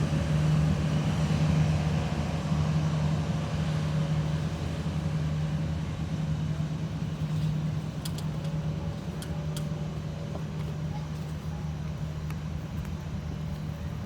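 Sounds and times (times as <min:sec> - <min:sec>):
low engine rumble: 0:00.0 - 0:14.0
sharp clicks: 0:08.0 - 0:09.7.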